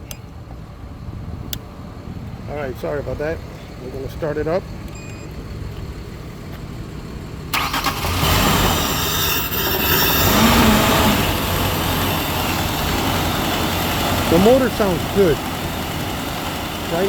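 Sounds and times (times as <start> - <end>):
engine starting and running: 3.5 - 17.0.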